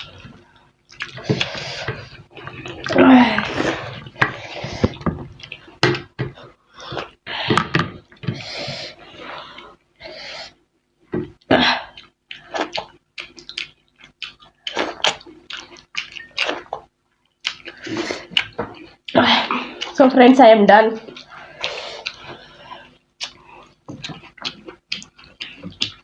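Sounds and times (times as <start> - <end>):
wet chewing: 0.0 - 6.1, 12.0 - 19.1, 21.1 - 26.0.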